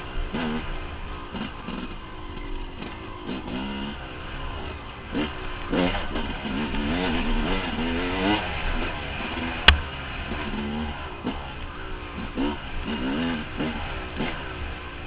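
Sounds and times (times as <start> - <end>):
dirt bike engine revving: 0.0 - 15.0
sharp knock: 9.7 - 9.9.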